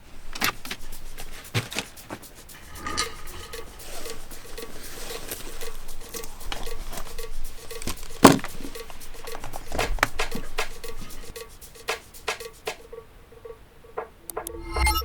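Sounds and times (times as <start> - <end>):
faint even pulse: 14.3 - 15.0.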